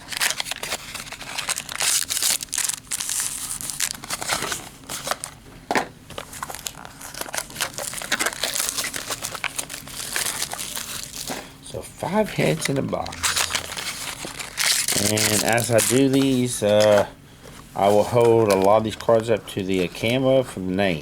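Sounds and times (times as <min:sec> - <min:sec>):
wrappers crinkling and crackling: 0:00.0 - 0:05.4, 0:06.1 - 0:11.5, 0:12.4 - 0:17.1.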